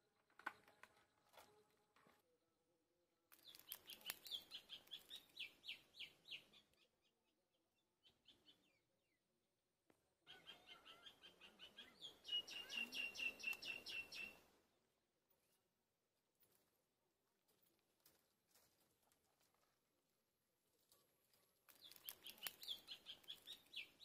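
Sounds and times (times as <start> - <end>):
faint clicks: 3.3 - 5.4, 21.7 - 23.9
bird chirping: 3.3 - 9.6, 10.2 - 14.9, 21.6 - 24.0.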